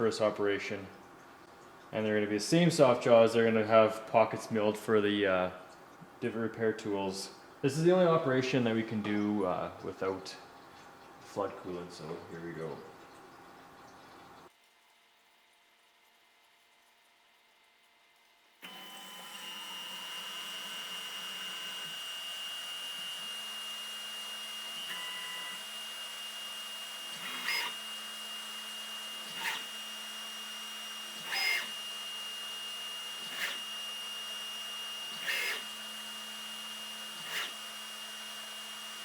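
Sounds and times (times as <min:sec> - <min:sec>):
drill bit cutting metal: 0:18.6 - 0:39.0
mill spindle high whine: 0:18.6 - 0:39.0.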